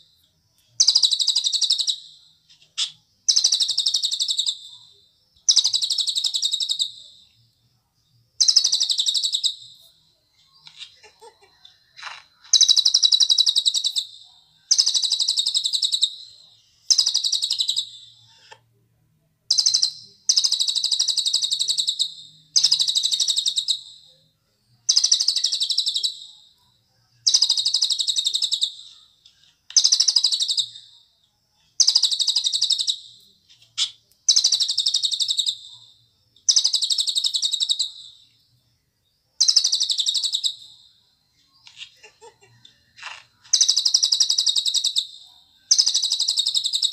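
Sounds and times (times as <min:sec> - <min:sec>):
bird singing buzzy trills: 0:19.5 - 0:24.1, 0:24.8 - 0:46.9.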